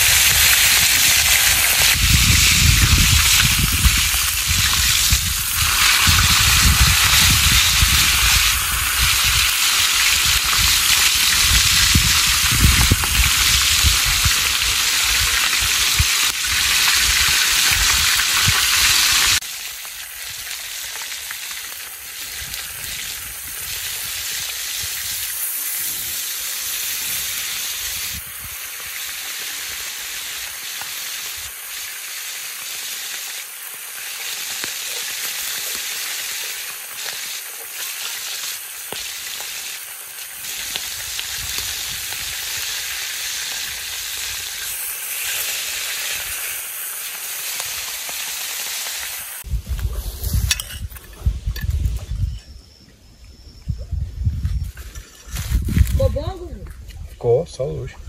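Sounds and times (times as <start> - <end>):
fish sizzling in hot oil: 0.0 - 52.3.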